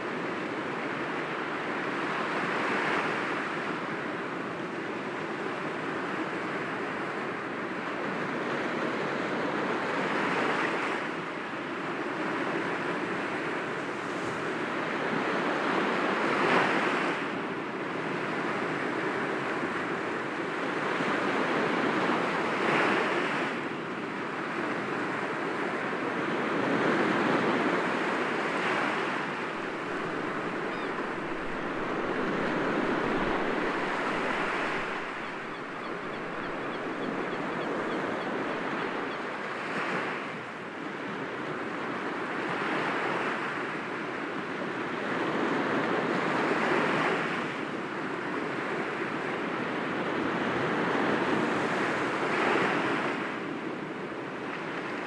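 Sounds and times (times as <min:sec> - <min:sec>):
waves breaking against rocks: 0:29.6 - 0:37.2.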